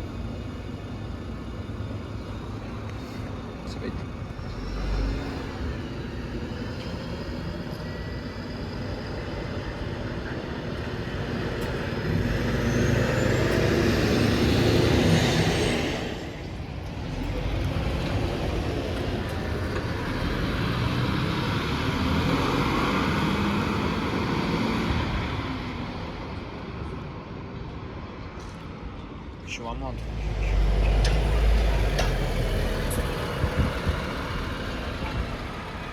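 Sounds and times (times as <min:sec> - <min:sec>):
street traffic: 0:00.0 - 0:35.9
large vehicle passing: 0:29.9 - 0:35.9.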